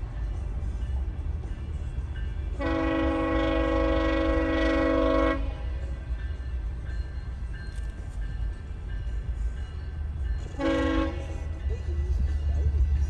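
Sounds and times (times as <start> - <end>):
train rumbling past: 0.0 - 13.0
train horn blast: 2.6 - 6.0, 10.5 - 11.6.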